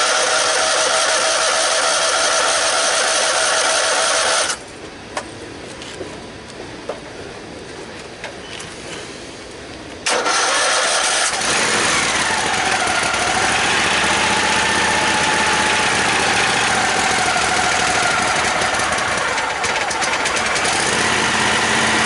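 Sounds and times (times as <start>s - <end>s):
engine cranking and starting: 0.0s - 4.6s, 10.0s - 22.0s
engine fast idle: 10.1s - 22.0s.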